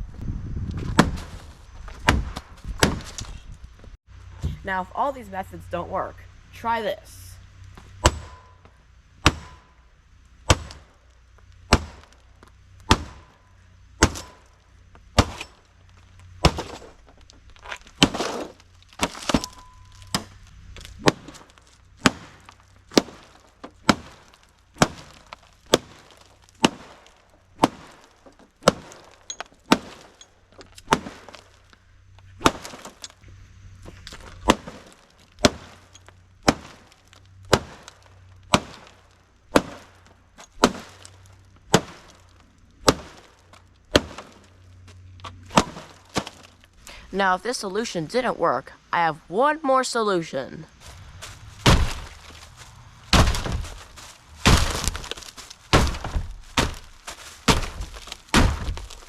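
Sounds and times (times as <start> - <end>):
heavy blows smashing a tv: 12.8 - 13.4, 17.8 - 20.4, 21.0 - 30.2, 30.8 - 31.6, 32.4 - 33.1, 34.2 - 40.0, 45.5 - 46.5, 51.6 - 59.0
screen breaking and cracking: 15.2 - 31.7, 51.6 - 59.0.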